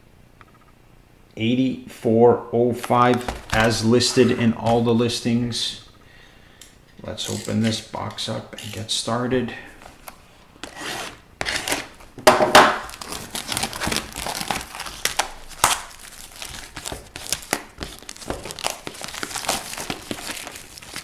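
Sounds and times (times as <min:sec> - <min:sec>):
plastic wrapping crinkling and tearing: 0:02.9 - 0:05.0, 0:07.1 - 0:09.0, 0:09.6 - 0:21.0.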